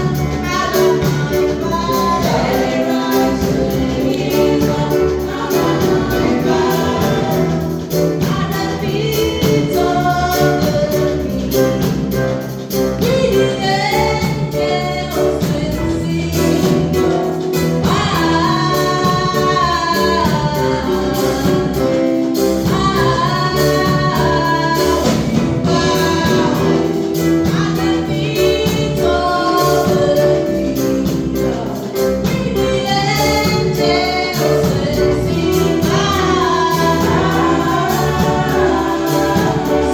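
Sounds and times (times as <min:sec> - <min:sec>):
choir singing: 0:00.0 - 0:11.5, 0:23.0 - 0:39.9
instrumental backing: 0:00.0 - 0:39.9.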